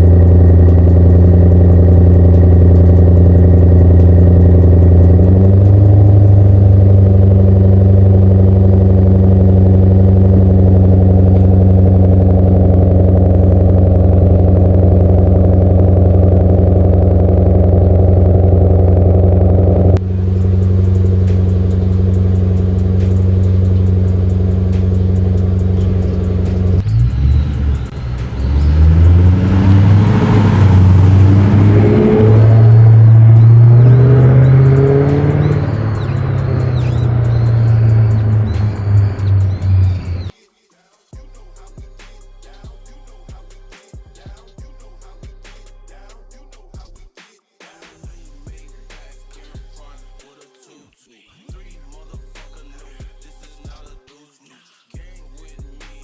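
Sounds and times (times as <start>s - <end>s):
car engine revving: 0.0s - 40.3s.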